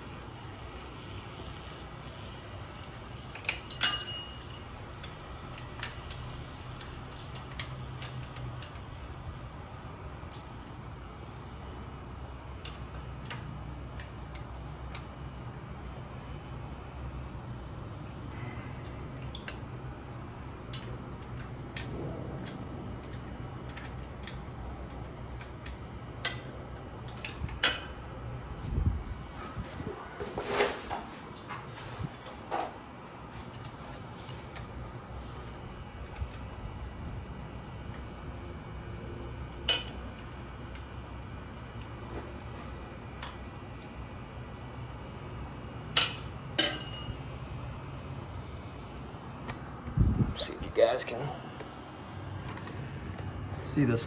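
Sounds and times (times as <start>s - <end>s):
steady low hum: 0.0s - 54.0s
metal tools clinking: 2.8s - 4.8s, 29.0s - 34.4s, 46.0s - 47.2s.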